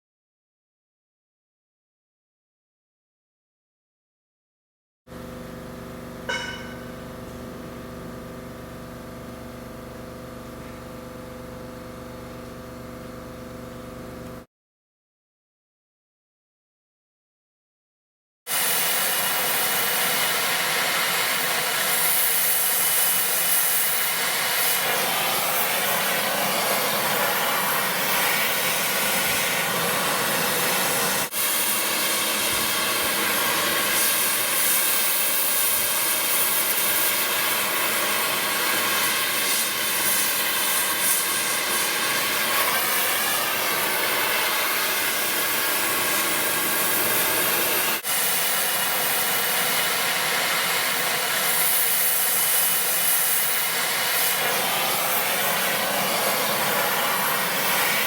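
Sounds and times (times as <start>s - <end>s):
machine hissing and humming: 18.5s - 58.0s.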